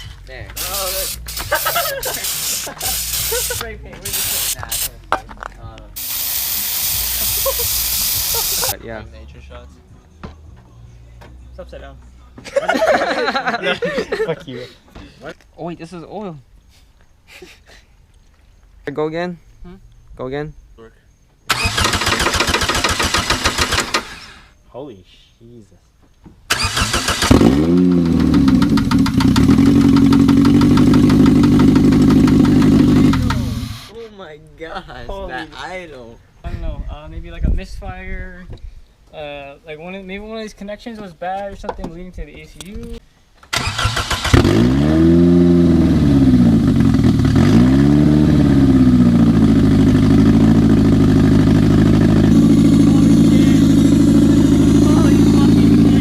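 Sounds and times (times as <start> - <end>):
car engine starting and idling: 21.5 - 24.5, 26.5 - 33.9, 43.5 - 56.0.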